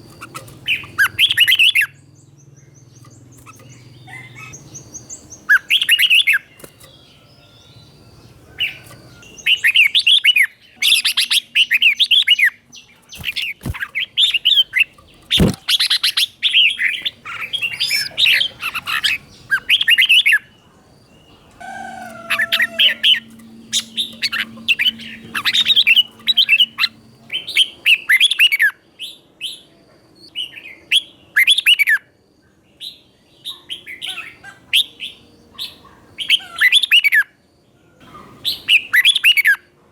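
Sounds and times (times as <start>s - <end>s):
bulbul singing: 0.0s - 28.7s.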